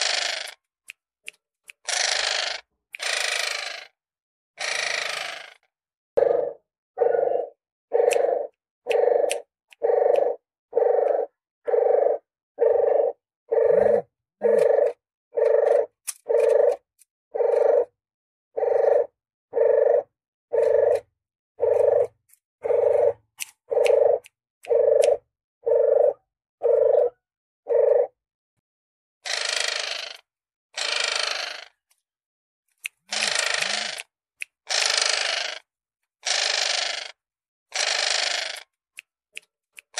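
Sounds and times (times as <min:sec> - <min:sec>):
dove cooing: 0:06.2 - 0:16.8, 0:17.4 - 0:17.9, 0:18.6 - 0:21.0, 0:21.6 - 0:28.1.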